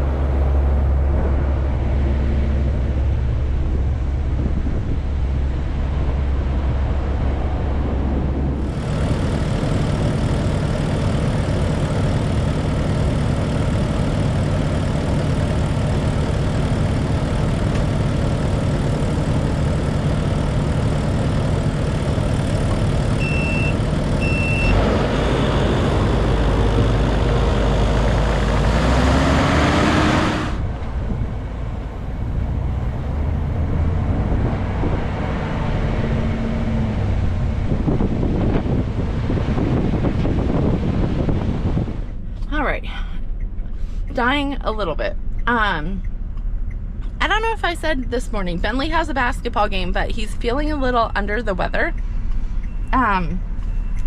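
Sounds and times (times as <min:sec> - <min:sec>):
snow-clearing vehicle engine: 0:00.0 - 0:45.8
short high beeps: 0:23.2 - 0:24.8.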